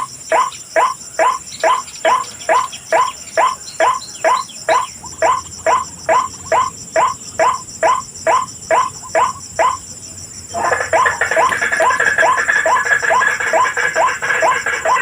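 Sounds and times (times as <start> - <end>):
waterhen calling harshly: 10.5 - 15.0.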